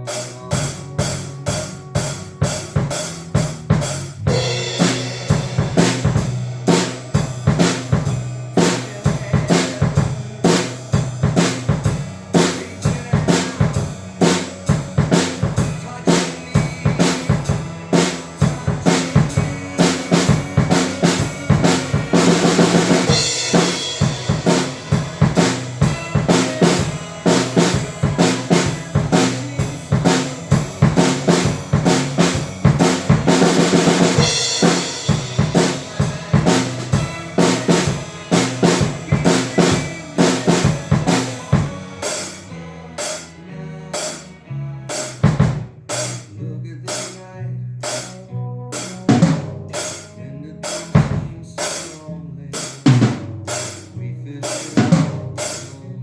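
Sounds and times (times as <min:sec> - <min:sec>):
drum kit beat: 0:00.0 - 0:55.9
cymbal crash: 0:44.9 - 0:46.3, 0:47.8 - 0:48.2, 0:49.8 - 0:52.0, 0:52.6 - 0:55.8.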